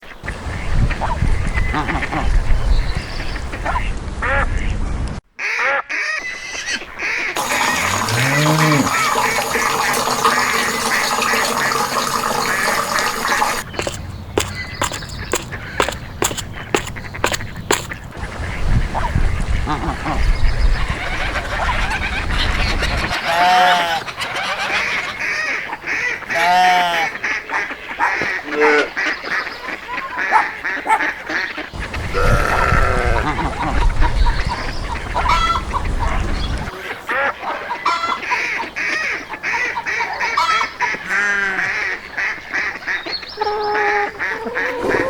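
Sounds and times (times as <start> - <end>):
ducks quacking: 0.1 - 2.6, 5.4 - 45.0
geese honking: 20.9 - 29.1, 36.7 - 45.0.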